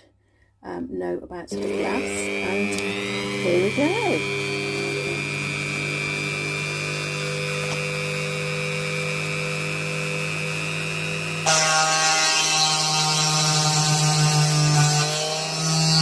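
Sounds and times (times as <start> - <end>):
electric drill humming and whining: 1.6 - 16.0.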